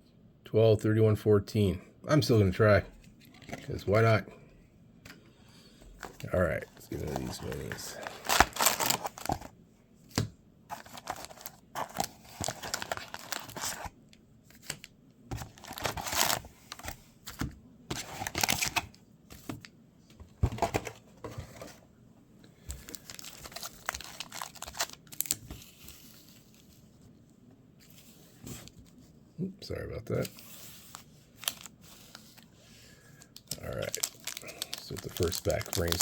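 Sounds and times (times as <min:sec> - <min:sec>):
packaging tearing and crinkling: 0:07.0 - 0:09.4, 0:10.7 - 0:13.9, 0:15.3 - 0:16.8, 0:18.0 - 0:18.9, 0:22.9 - 0:25.4, 0:31.4 - 0:31.7, 0:33.4 - 0:36.0.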